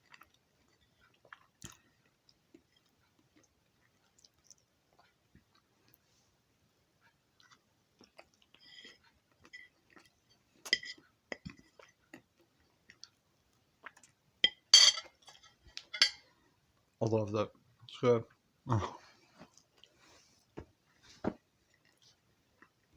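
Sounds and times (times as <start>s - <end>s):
person chewing: 0.0s - 6.0s, 7.4s - 13.2s, 13.8s - 14.2s.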